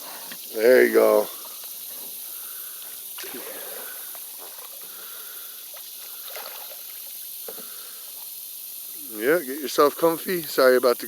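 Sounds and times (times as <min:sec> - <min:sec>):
outdoor hiss: 0:00.0 - 0:11.0
paddle splashing in water: 0:03.2 - 0:05.0, 0:05.7 - 0:07.7.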